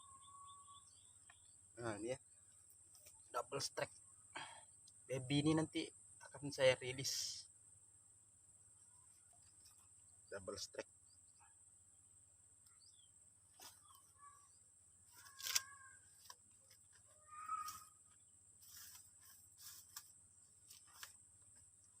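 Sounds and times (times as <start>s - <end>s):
high-pitched insect drone: 17.1s - 19.9s.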